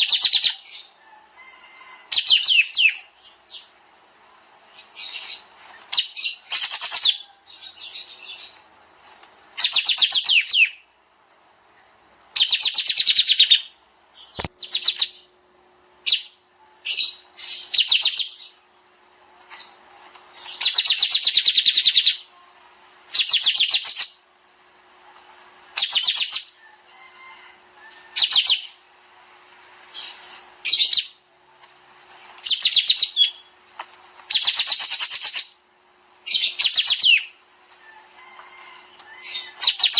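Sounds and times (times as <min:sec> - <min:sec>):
bird chattering trills: 0:02.0 - 0:03.8, 0:04.7 - 0:08.6, 0:09.6 - 0:10.9, 0:12.3 - 0:15.4, 0:16.0 - 0:18.6, 0:20.4 - 0:22.3, 0:23.1 - 0:24.3, 0:25.7 - 0:26.7, 0:28.0 - 0:28.8, 0:29.9 - 0:31.2, 0:32.4 - 0:33.6, 0:34.3 - 0:35.6, 0:36.2 - 0:37.4, 0:39.2 - 0:39.9.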